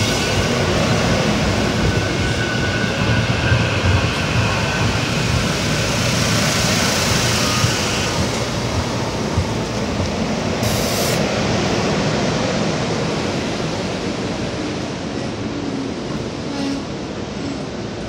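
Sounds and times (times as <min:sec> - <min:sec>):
train wheels rumbling on rails: 0:00.0 - 0:18.0
sharp hiss: 0:10.6 - 0:11.3.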